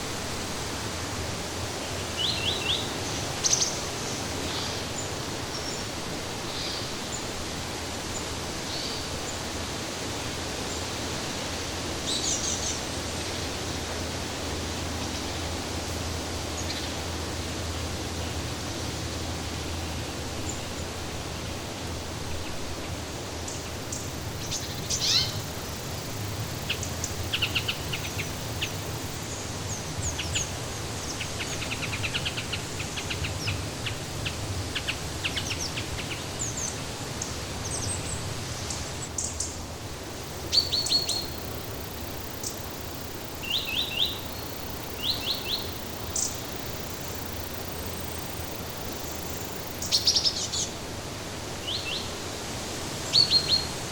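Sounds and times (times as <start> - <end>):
small birds chirping and trilling: 23.4 - 39.6, 40.2 - 50.7.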